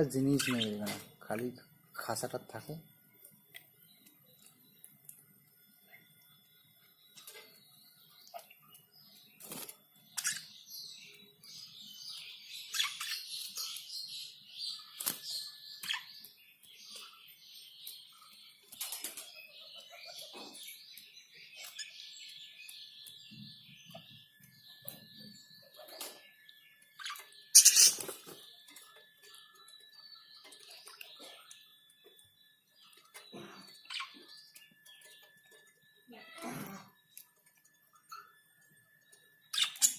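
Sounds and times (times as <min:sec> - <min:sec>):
budgerigars chattering and chirping: 0:00.0 - 0:02.8, 0:07.1 - 0:26.2, 0:27.0 - 0:28.4, 0:32.8 - 0:35.3, 0:39.5 - 0:39.9.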